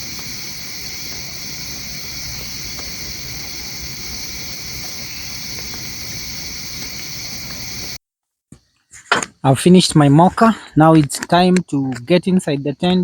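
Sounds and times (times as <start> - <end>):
crickets chirring: 0.0 - 8.0, 11.3 - 13.0
low rushing noise: 0.0 - 8.0.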